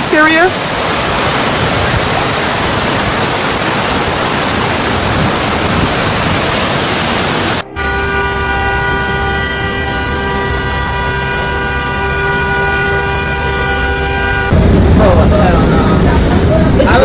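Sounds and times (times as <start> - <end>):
floodwater rushing: 0.0 - 7.6, 14.5 - 17.0.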